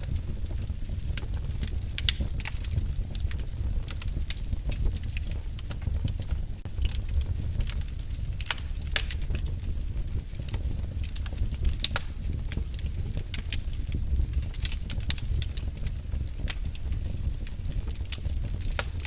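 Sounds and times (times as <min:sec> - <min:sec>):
fire crackling and popping: 0:00.0 - 0:19.0
fire flames rumbling: 0:00.0 - 0:19.0.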